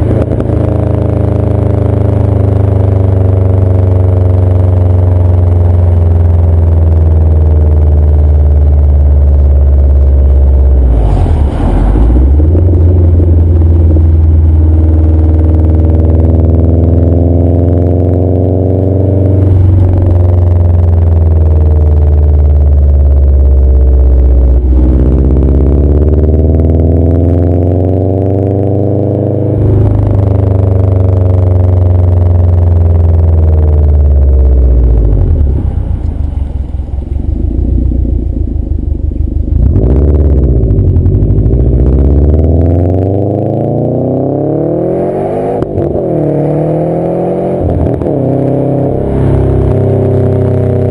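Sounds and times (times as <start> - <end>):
car engine revving while driving: 0.0 - 38.2, 39.4 - 50.9.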